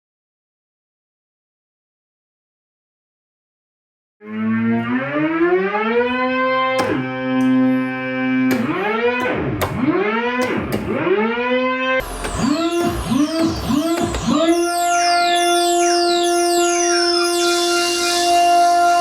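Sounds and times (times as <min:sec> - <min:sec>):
buzzy synthesizer pitch sweeps: 0:11.0 - 0:19.0.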